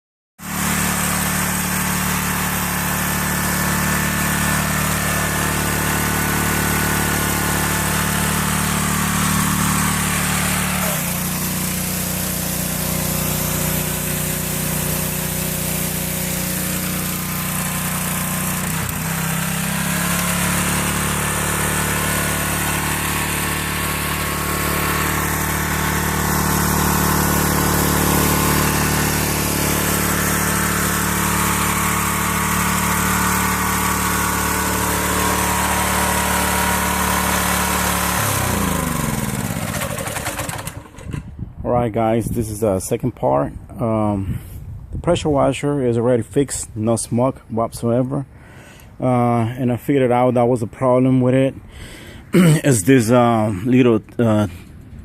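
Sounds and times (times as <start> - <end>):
pressure washer engine running: 0.4 - 41.4.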